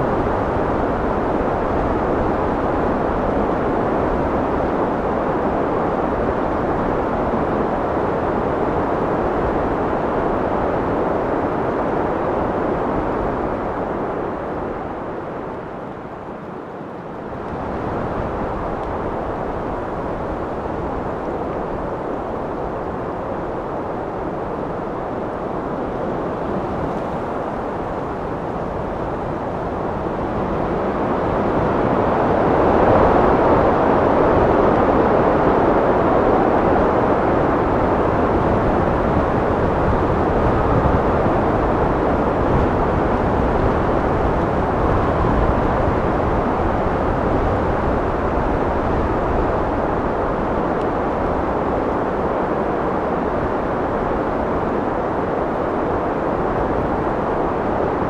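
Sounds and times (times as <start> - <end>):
wind blowing: 0.0 - 33.9.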